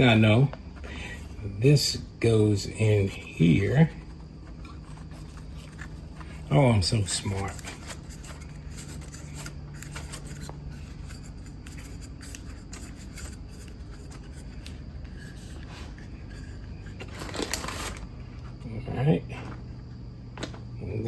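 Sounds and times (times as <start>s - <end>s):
plastic parts scraping: 2.6s - 18.7s
plastic parts clicking and rubbing: 3.3s - 18.7s.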